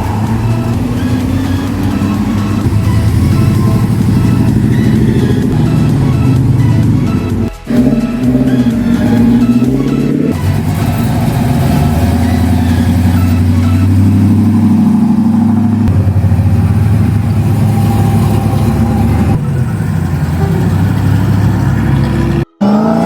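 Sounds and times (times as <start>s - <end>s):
car engine running: 0.0s - 22.5s.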